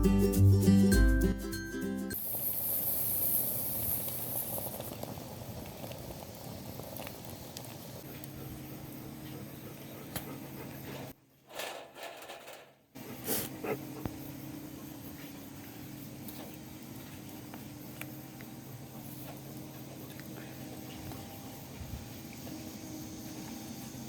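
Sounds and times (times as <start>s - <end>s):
fire crackling: 2.1s - 11.1s
fire hissing: 2.1s - 11.2s, 13.0s - 24.0s.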